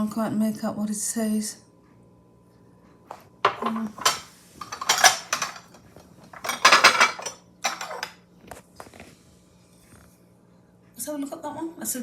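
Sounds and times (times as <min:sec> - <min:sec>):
china clinking: 0:03.5 - 0:08.2.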